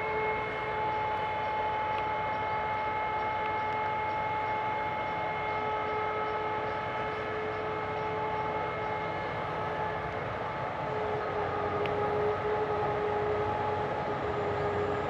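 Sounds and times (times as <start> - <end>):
harvest machinery running: 6.6 - 15.0.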